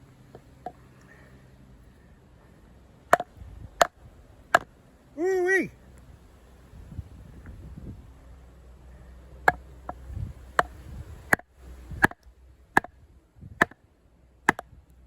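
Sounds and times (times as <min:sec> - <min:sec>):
blade knocking through a log: 0:03.1 - 0:04.7, 0:09.5 - 0:10.0, 0:10.6 - 0:12.2, 0:12.8 - 0:13.0, 0:13.6 - 0:13.8, 0:14.5 - 0:14.7.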